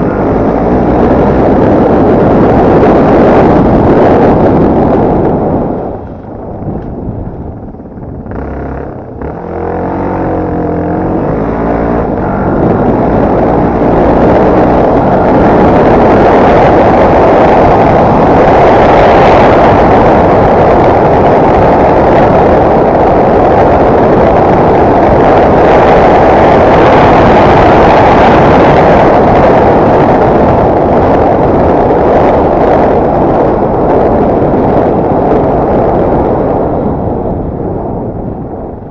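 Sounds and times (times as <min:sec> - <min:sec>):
motorcycle engine revving: 0:00.0 - 0:30.2.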